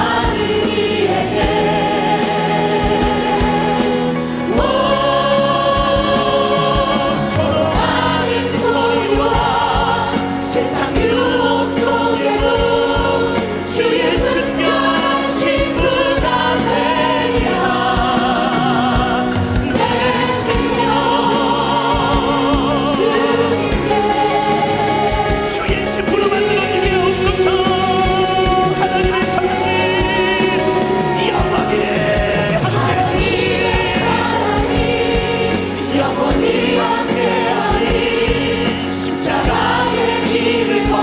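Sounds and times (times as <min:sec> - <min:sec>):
accompaniment with steady beat: 0:00.0 - 0:41.0
choir and congregation singing: 0:00.0 - 0:41.0.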